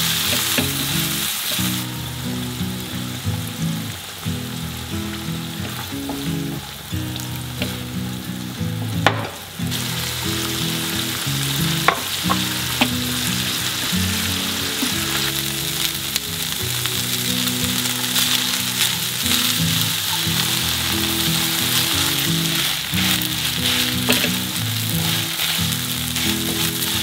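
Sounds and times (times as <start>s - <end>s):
food sizzling in a frying pan: 0.0s - 27.0s.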